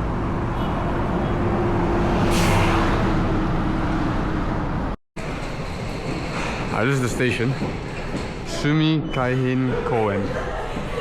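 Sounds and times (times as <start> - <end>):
vehicle rumble and hum: 0.0 - 6.0.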